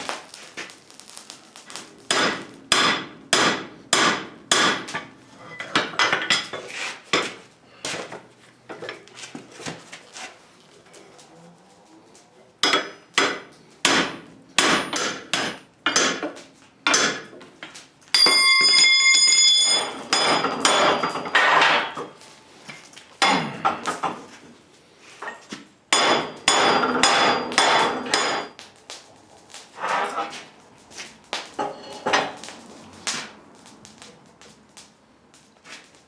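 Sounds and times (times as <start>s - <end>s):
hammer striking steel on anvil: 2.1s - 7.3s, 12.6s - 17.3s, 18.1s - 22.1s, 25.9s - 28.6s.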